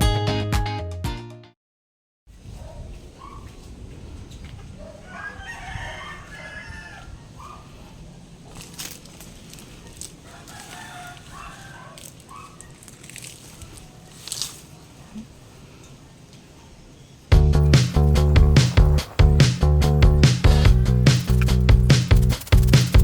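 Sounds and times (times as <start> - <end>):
rooster crowing: 5.0 - 7.5, 10.2 - 12.1.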